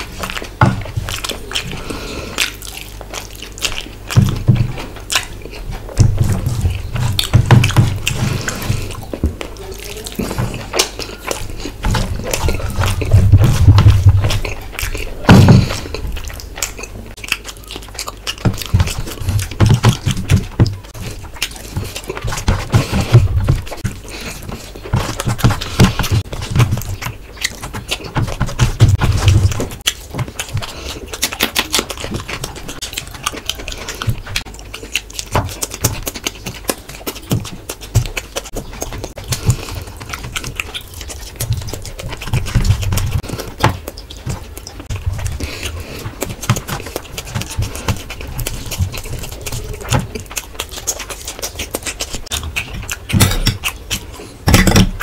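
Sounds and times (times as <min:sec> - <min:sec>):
wet chewing and lip-smacking: 0:00.0 - 0:55.0
heavy breaths: 0:01.4 - 0:02.6, 0:08.0 - 0:13.5, 0:14.3 - 0:16.2, 0:20.8 - 0:26.9, 0:29.2 - 0:31.2, 0:39.1 - 0:40.6, 0:44.8 - 0:49.8.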